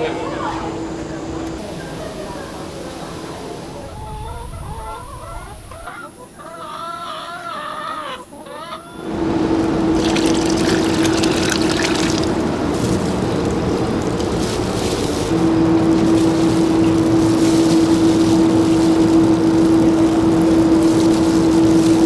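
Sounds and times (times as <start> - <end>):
chickens clucking: 0.0 - 22.0
mechanical noise with low hum: 8.8 - 22.0.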